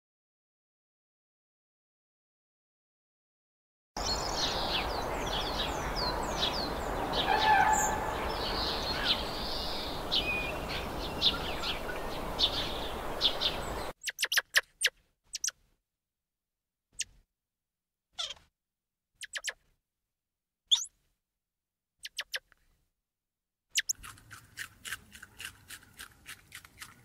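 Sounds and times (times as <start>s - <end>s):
outdoor background hiss: 4.0s - 13.9s
small birds chirping: 4.0s - 15.6s, 17.0s - 17.2s, 18.2s - 18.4s, 19.2s - 19.6s, 20.7s - 21.0s, 22.0s - 22.6s, 23.7s - 24.0s.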